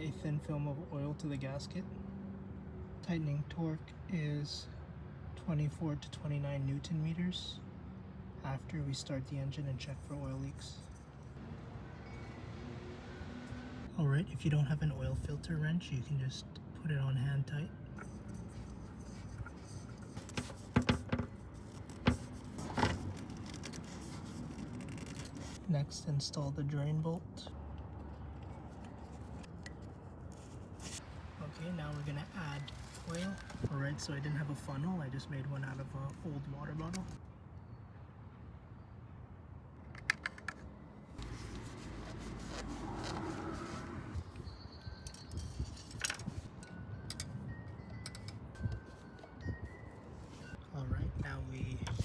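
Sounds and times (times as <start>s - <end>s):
sharp clicks and knocks: 39.9s - 40.7s.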